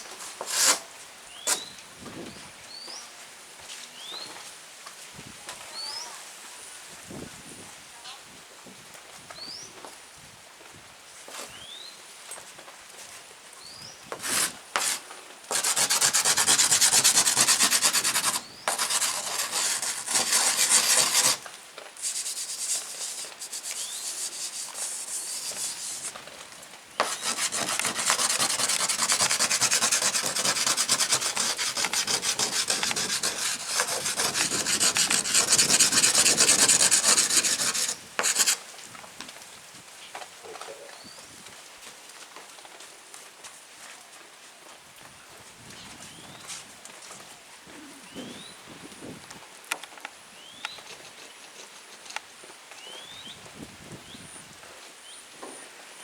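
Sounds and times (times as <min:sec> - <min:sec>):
rubbing strokes on a hard surface: 0:00.0 - 0:00.9, 0:14.2 - 0:26.2, 0:27.0 - 0:38.6.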